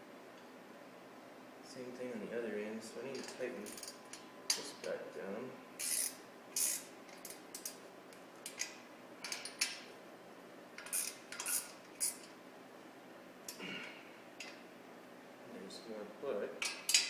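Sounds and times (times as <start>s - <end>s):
wrench clinking and scraping metal: 3.2s - 4.7s, 5.8s - 7.8s, 10.8s - 12.3s, 16.6s - 17.0s.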